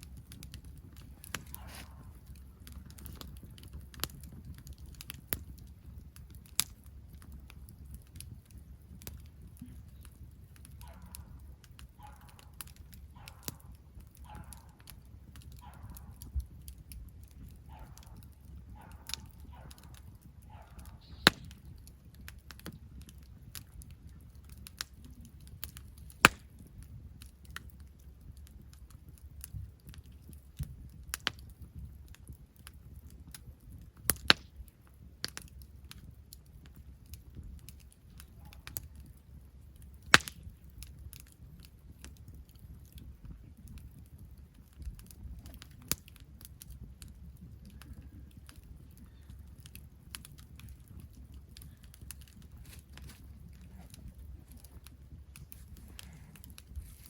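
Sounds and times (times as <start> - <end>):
campfire crackling and popping: 0.0 - 57.0
low steady rumble: 43.0 - 57.0.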